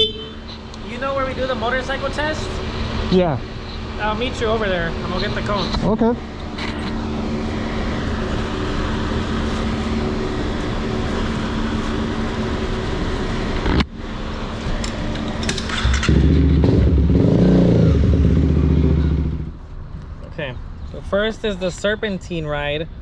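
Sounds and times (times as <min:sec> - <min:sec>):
motorcycle engine running: 0:15.4 - 0:19.6.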